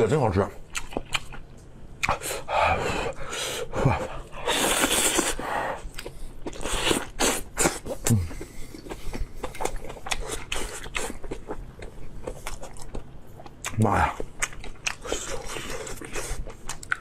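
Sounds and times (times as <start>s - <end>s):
person slurping: 2.0s - 5.8s, 6.5s - 9.0s.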